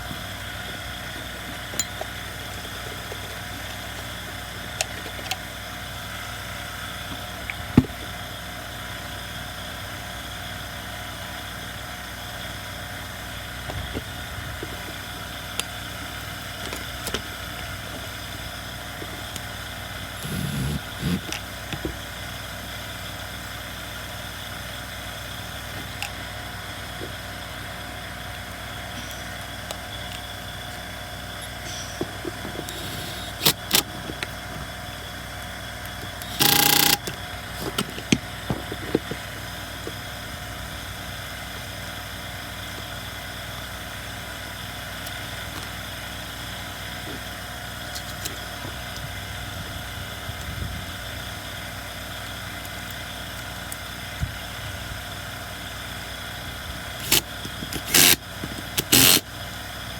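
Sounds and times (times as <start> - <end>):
steady background hum: 0.0 - 9.2, 12.3 - 59.9
hand tools clicking and knocking: 20.2 - 21.4, 36.2 - 39.2.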